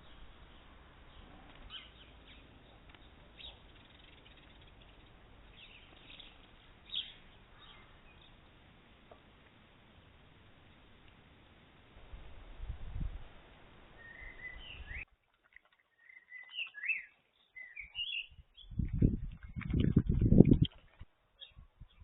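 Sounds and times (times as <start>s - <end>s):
small birds chirping: 0.0s - 8.5s, 14.0s - 15.1s, 15.8s - 22.0s
steady low hiss: 0.0s - 15.0s.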